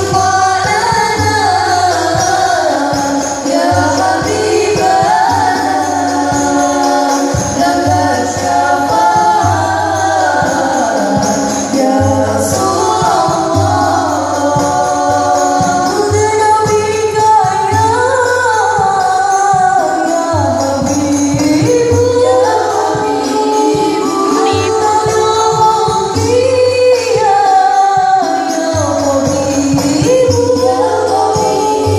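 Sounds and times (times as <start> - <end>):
frame drums with jingles: 0.0 - 31.9
person singing melodic lines: 23.6 - 25.6.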